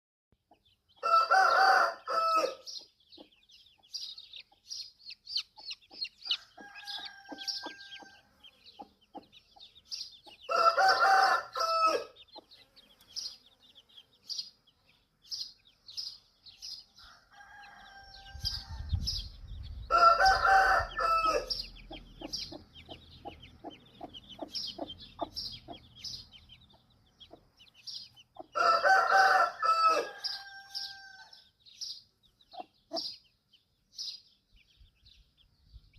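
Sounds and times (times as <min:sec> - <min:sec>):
rooster crowing: 0:01.0 - 0:02.7, 0:06.3 - 0:08.4, 0:10.5 - 0:12.2, 0:17.0 - 0:19.0, 0:19.9 - 0:21.7, 0:28.6 - 0:31.5.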